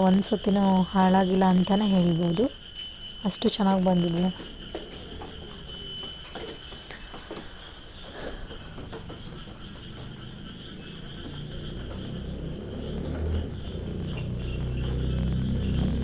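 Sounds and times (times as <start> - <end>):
cricket chirping: 0.0 - 16.0
high insect hum: 0.0 - 16.0.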